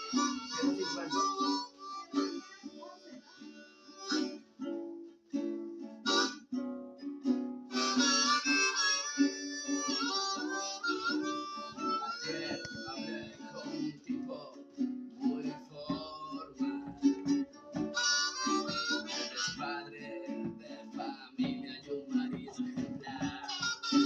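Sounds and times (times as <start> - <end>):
harmonica wailing: 0.0 - 4.6, 6.0 - 6.5, 7.7 - 14.0, 16.4 - 20.2, 23.3 - 24.0
guitar strumming: 0.0 - 24.0.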